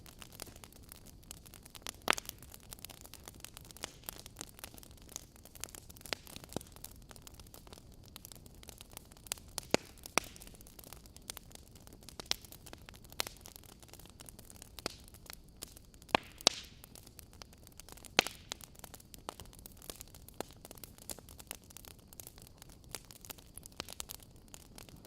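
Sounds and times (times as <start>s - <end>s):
faint steady hiss: 0.0s - 25.0s
wood fire crackling: 0.0s - 25.0s.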